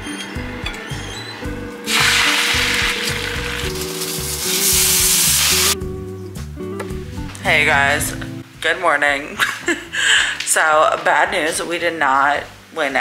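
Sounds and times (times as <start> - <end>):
background music: 0.0 - 13.0
food sizzling in a frying pan: 1.9 - 5.8.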